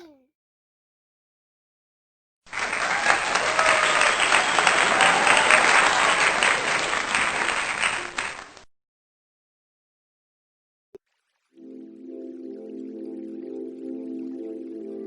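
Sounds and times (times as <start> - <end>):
faint cheering: 2.5 - 8.6
crowd applause: 2.5 - 8.7.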